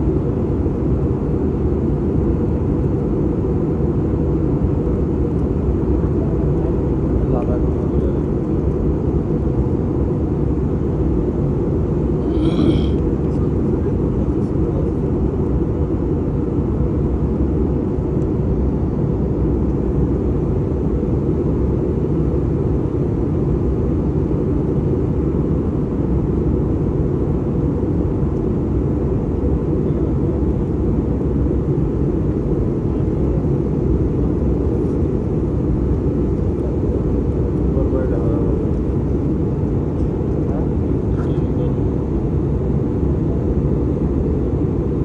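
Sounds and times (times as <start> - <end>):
airliner cabin engine rumble: 0.0 - 45.0.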